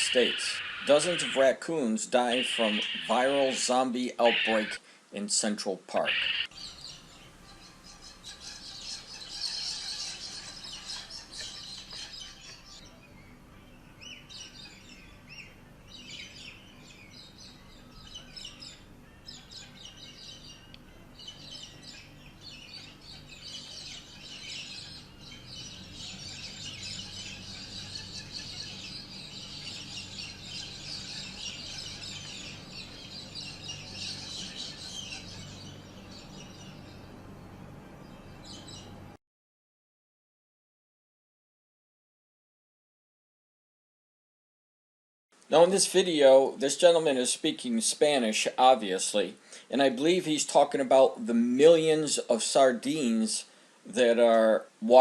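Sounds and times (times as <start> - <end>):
birds chirping and calling: 0.0 - 5.0, 5.9 - 39.1
faint low hum: 0.0 - 39.2.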